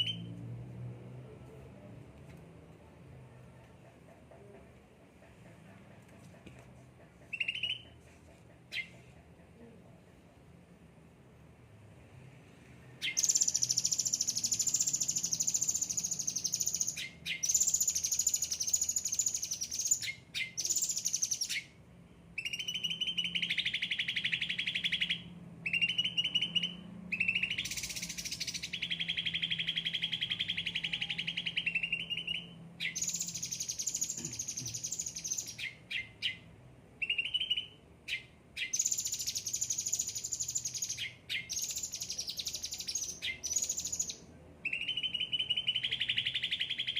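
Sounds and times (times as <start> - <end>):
songbird singing in trills: 0.0 - 0.5, 7.2 - 8.0, 13.0 - 46.9.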